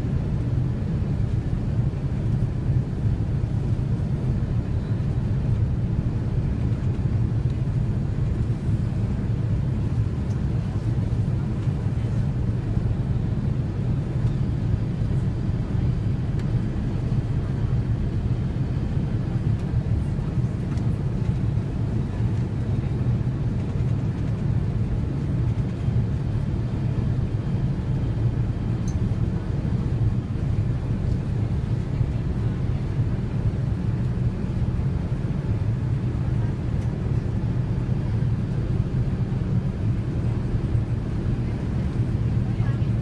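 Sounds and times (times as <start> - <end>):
jet engines rumbling in cabin: 0.0 - 43.0.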